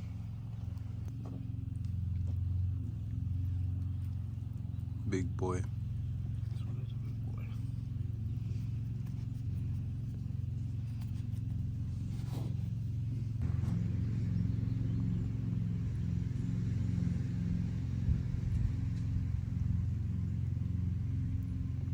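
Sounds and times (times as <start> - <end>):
engine rumbling: 0.0 - 21.9.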